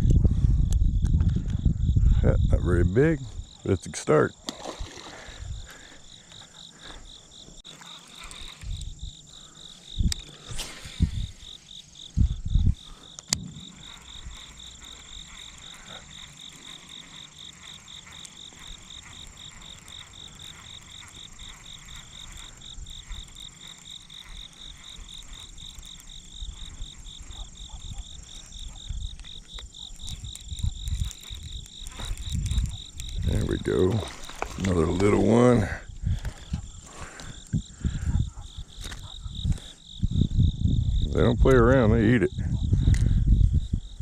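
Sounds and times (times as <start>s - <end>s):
insects chirping in pulsing trill: 0.0s - 44.0s
low thumps: 10.0s - 15.4s.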